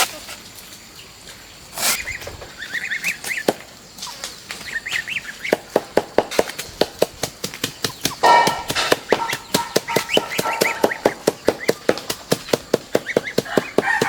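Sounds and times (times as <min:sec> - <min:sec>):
birds chirping: 0:00.4 - 0:14.0
rapid sharp knocks: 0:05.4 - 0:14.0.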